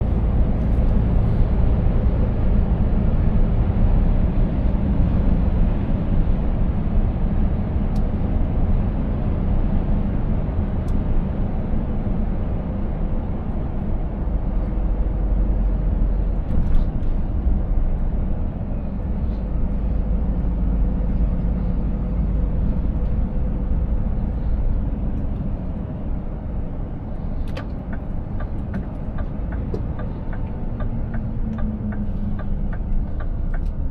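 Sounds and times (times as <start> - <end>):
truck engine and road rumble: 0.0 - 33.9.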